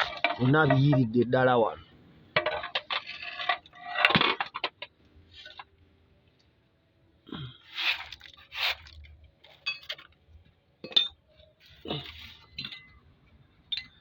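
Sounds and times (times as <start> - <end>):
metal tools clinking and scraping: 0.0 - 1.3, 2.4 - 5.7, 7.7 - 10.2, 10.8 - 13.1.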